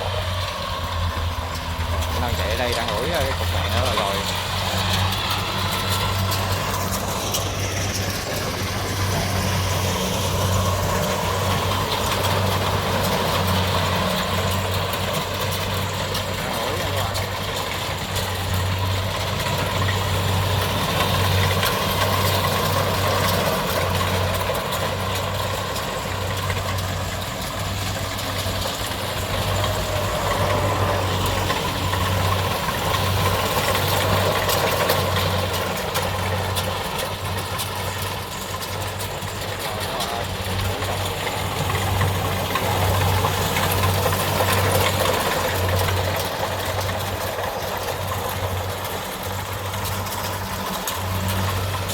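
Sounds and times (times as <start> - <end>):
combine harvester running: 0.0 - 51.9.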